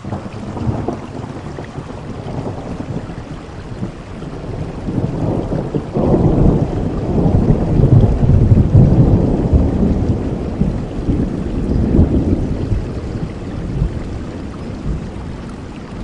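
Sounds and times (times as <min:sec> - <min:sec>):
steady rainfall: 0:00.0 - 0:16.0
thunder rumbling: 0:00.0 - 0:16.0.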